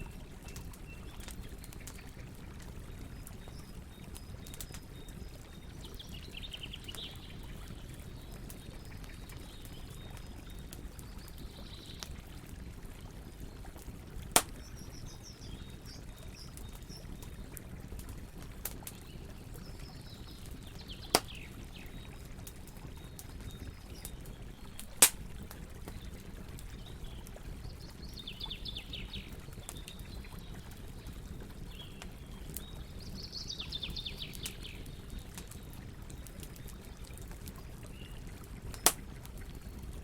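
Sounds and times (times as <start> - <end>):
campfire crackling: 0.0 - 40.0
loud sharp fire pops: 14.4 - 14.7, 25.0 - 25.2, 38.7 - 39.1.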